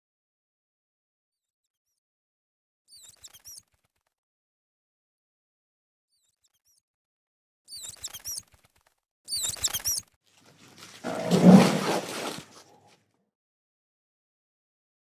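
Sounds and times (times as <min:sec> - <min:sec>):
rhinoceros rough low call: 0:10.8 - 0:12.7.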